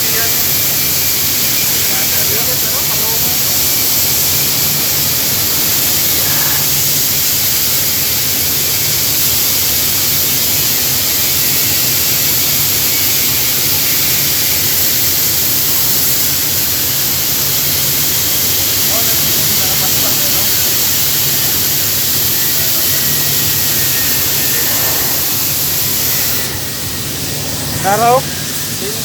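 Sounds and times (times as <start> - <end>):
cutting torch jet hissing: 0.0 - 29.0.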